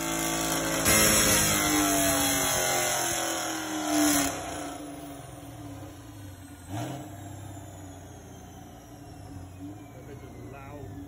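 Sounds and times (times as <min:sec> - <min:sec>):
car engine winding down: 0:00.0 - 0:11.0
engine idling: 0:00.0 - 0:11.0.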